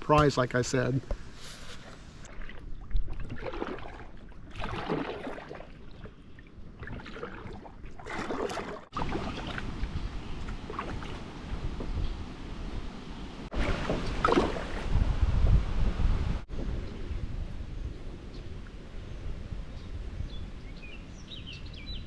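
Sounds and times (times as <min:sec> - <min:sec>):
paddle swishing and splashing: 0:01.3 - 0:19.2
wind rumble on microphone: 0:09.2 - 0:22.0.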